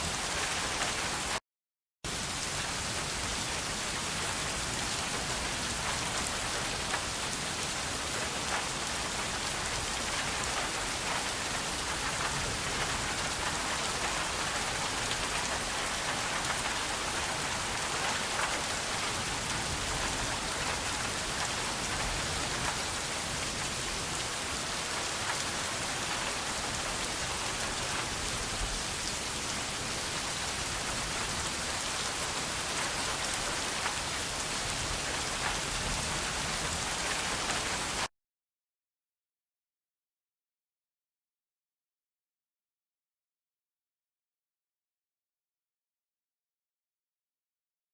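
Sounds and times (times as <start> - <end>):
steady rain falling: 0.0 - 1.4, 2.1 - 38.1.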